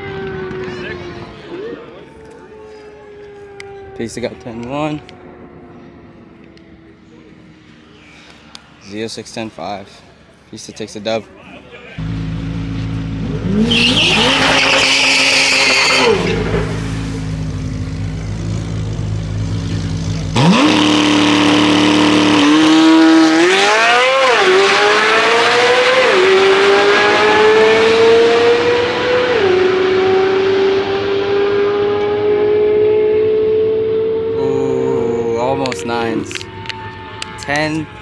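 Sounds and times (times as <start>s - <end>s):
drag racing car engine revving: 12.0s - 34.8s
car accelerating with upshifts: 12.0s - 37.3s
tire squeal: 13.4s - 17.3s.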